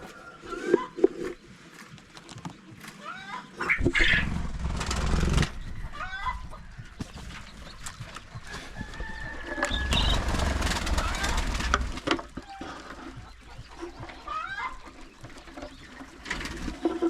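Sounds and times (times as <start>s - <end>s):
poultry calling: 2.9s - 4.6s, 5.2s - 17.0s
low rumbling noise: 3.8s - 12.1s.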